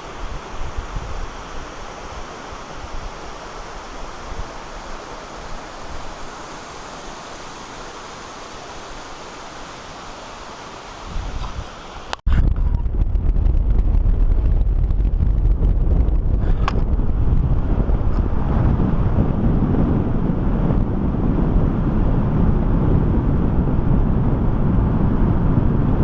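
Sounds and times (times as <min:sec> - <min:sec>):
wind buffeting microphone: 0:00.0 - 0:06.7, 0:11.0 - 0:26.0
waterfall rushing: 0:00.0 - 0:12.2.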